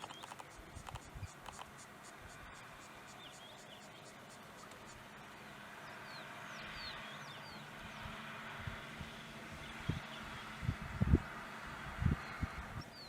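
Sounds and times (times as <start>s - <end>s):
faint bird chirps: 0.0s - 7.6s
background hiss: 0.0s - 10.6s.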